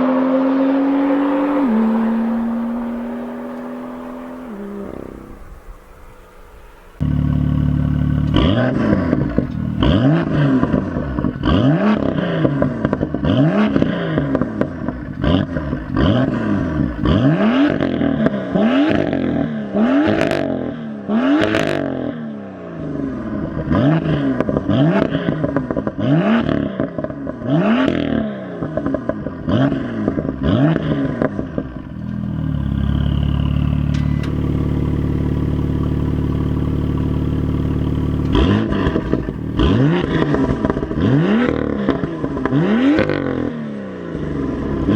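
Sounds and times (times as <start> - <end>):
exhaust pops: 0.0 - 16.0, 31.1 - 43.2
car engine revving: 0.0 - 44.9.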